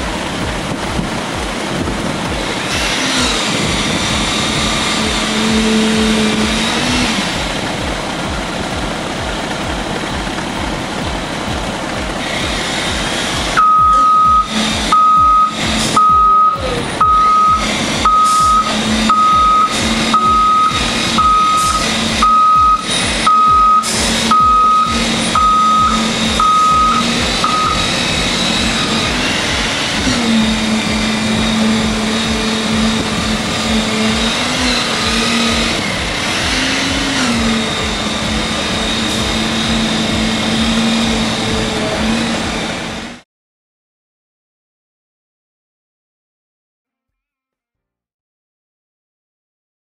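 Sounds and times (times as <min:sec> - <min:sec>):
heavy vehicle engine running: 0:00.0 - 0:43.2
vehicle backup alarm beeping: 0:13.6 - 0:29.3.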